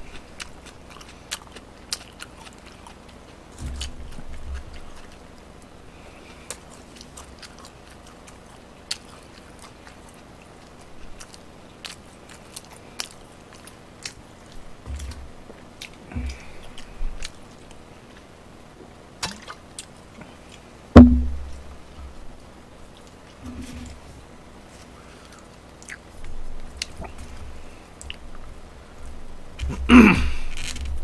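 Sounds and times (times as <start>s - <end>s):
loud thump: 21.0s - 21.6s.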